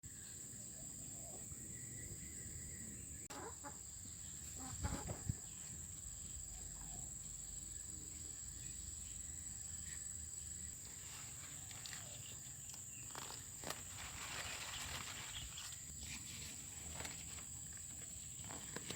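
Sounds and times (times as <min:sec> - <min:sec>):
chickens clucking: 0:03.3 - 0:05.4.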